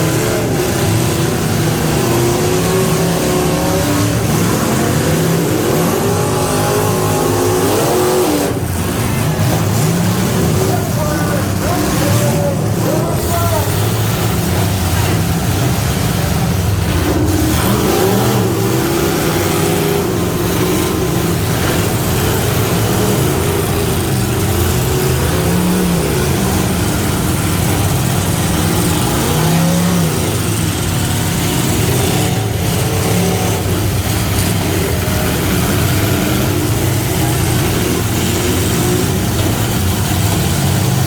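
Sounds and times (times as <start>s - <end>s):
pickup truck engine revving: 0.0s - 41.0s.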